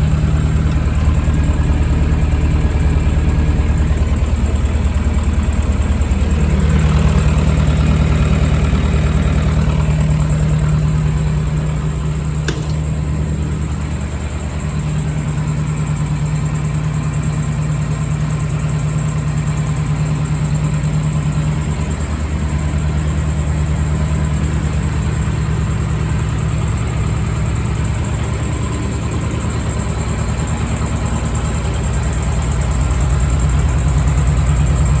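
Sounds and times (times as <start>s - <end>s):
tractor engine running: 0.0s - 35.0s
sharp click: 12.4s - 13.4s.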